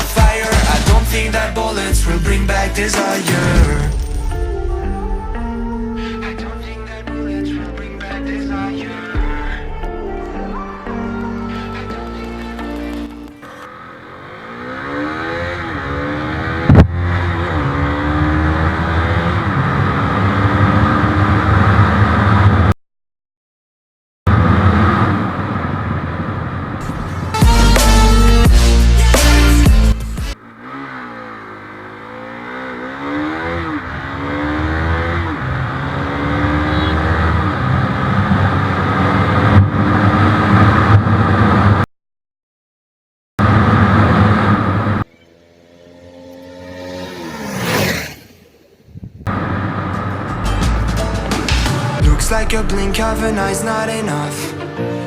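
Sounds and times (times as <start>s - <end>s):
motorcycle engine accelerating: 11.9s - 22.8s, 24.3s - 41.9s, 43.4s - 53.9s
wind noise: 48.9s - 49.6s.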